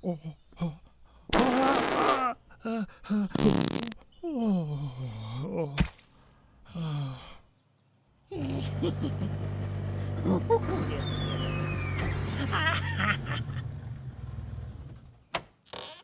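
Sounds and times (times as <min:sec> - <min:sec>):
cartoon fart sound: 0:01.3 - 0:02.3, 0:03.3 - 0:04.1, 0:15.7 - 0:16.0
cartoon falling groans: 0:10.0 - 0:13.6.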